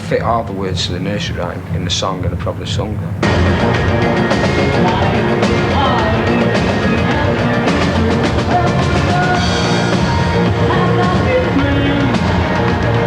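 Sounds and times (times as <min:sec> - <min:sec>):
drum kit beat: 0:03.2 - 0:13.0
loud band music: 0:03.2 - 0:13.0.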